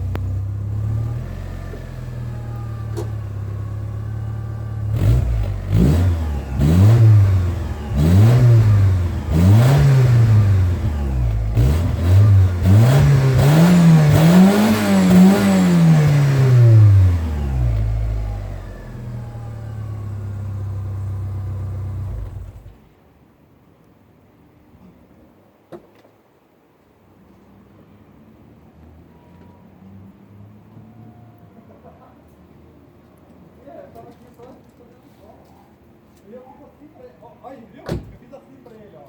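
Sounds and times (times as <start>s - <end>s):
car engine revving: 0.0s - 22.8s.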